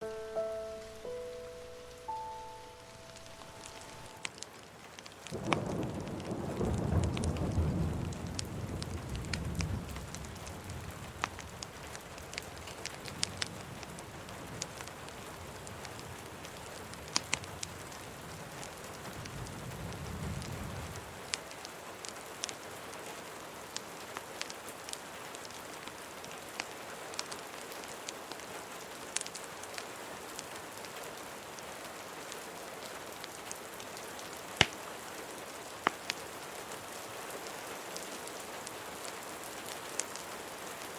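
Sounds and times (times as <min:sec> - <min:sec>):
steady rain falling: 0:00.0 - 0:40.9
wood fire crackling: 0:03.1 - 0:22.6, 0:33.1 - 0:37.1, 0:38.0 - 0:40.4
thunder rumbles: 0:05.3 - 0:12.0.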